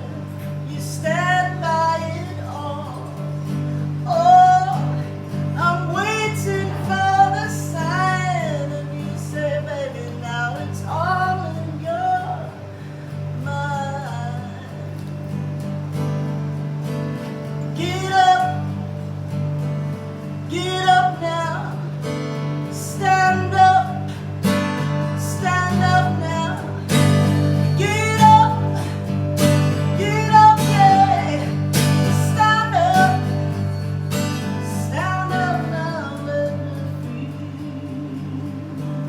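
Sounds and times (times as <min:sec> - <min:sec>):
acoustic guitar: 0:00.0 - 0:39.0
person singing: 0:04.1 - 0:12.6, 0:17.8 - 0:18.7, 0:20.5 - 0:22.0, 0:22.7 - 0:33.6, 0:34.5 - 0:39.0.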